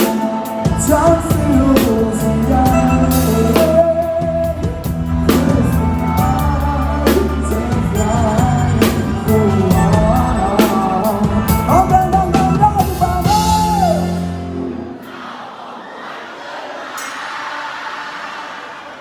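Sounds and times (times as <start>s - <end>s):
man singing: 0.0s - 14.9s
live rock band playing: 0.0s - 15.0s.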